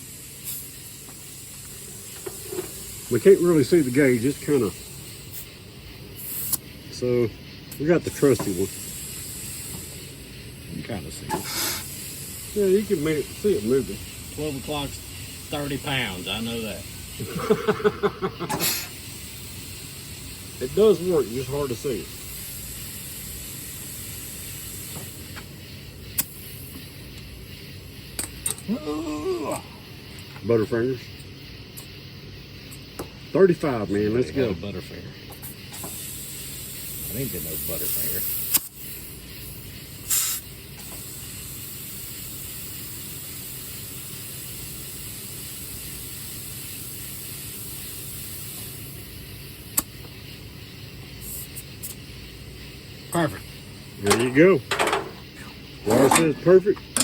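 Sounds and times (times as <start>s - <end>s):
compressed air hissing from hose: 0.0s - 57.0s
sharp click: 6.4s - 6.6s, 38.5s - 38.7s, 49.7s - 50.1s.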